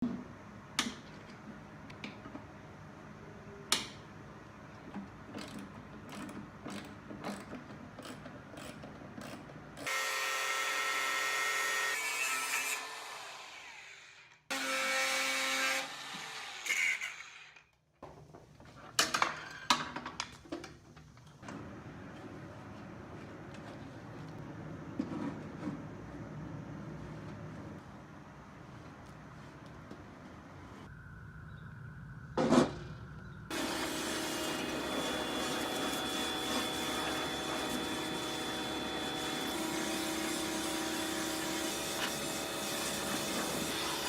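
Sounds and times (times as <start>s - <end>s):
power drill running: 9.8s - 17.6s, 33.5s - 44.0s.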